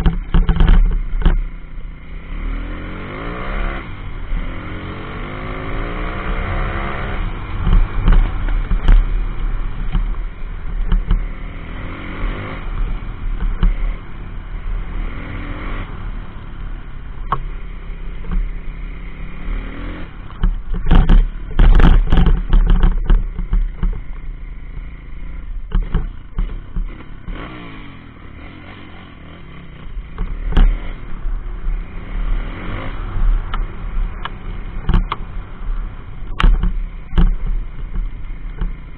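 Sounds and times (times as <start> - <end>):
loud thumps and clatter: 0.0 - 1.6, 7.5 - 11.5, 13.3 - 14.0, 20.2 - 24.3, 25.6 - 27.4, 29.7 - 31.1, 33.4 - 35.4, 36.1 - 38.9
motorbike engine revving: 0.0 - 16.4, 17.2 - 38.9.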